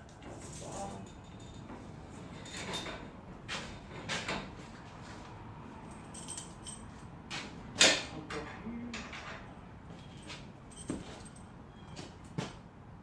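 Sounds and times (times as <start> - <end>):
metal hardware clinking and jingling: 5.9 - 7.1, 10.2 - 11.5.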